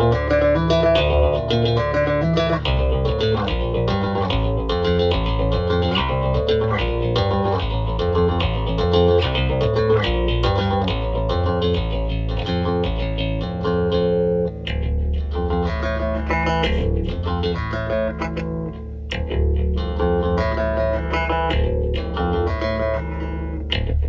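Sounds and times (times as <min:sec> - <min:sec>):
bass guitar picked notes: 0:00.0 - 0:24.0.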